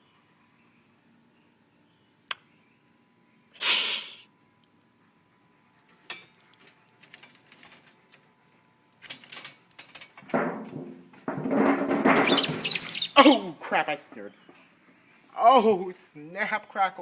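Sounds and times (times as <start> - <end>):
bird hissing: 3.6 - 4.3, 12.3 - 13.4
rustling and scraping: 6.4 - 13.4.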